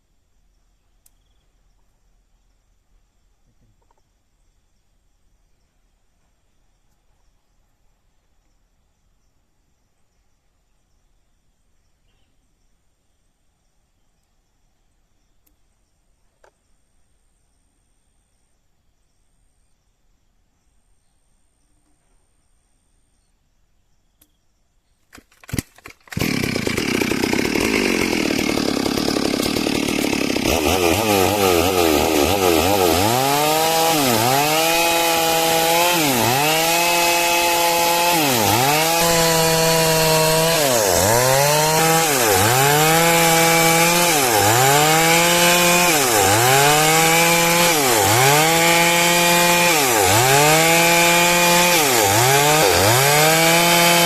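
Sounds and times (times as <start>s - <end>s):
chainsaw cutting log: 25.1s - 54.0s.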